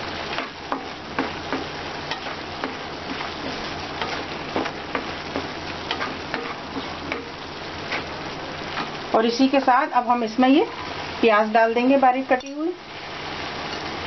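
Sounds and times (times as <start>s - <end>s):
meat sizzling in a pan: 0.0s - 14.0s
wooden spatula scraping a pan: 0.3s - 9.2s.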